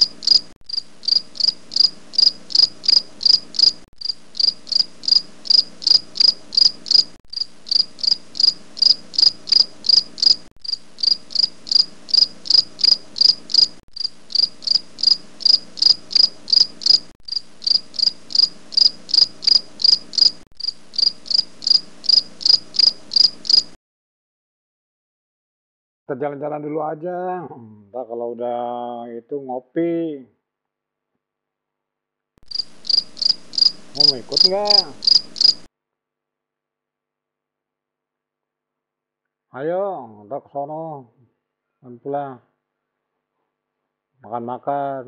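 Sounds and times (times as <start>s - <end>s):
cricket chirping: 0.0s - 23.8s, 32.5s - 35.7s.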